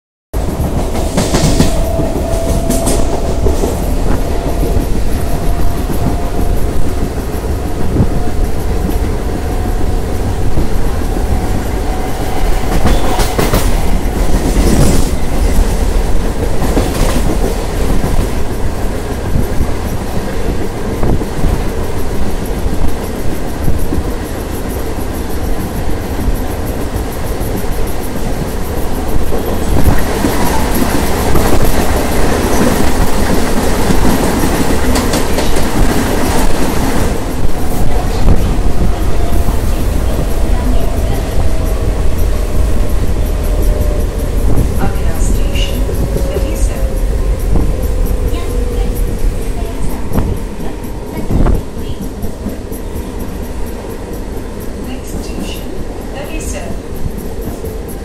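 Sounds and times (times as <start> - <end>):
train rumble: 0.3 - 58.0
train wheels clattering on rails: 0.4 - 58.0
steady whine: 36.1 - 55.1.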